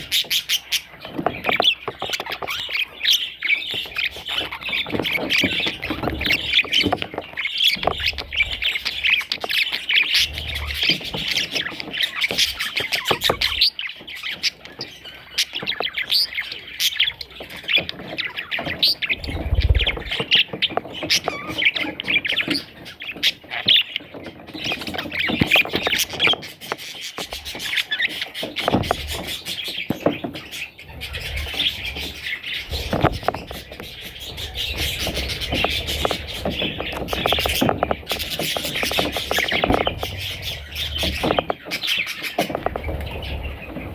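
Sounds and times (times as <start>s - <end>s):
budgerigars chirping and squawking: 0.0s - 43.9s
low bumps: 19.2s - 20.2s.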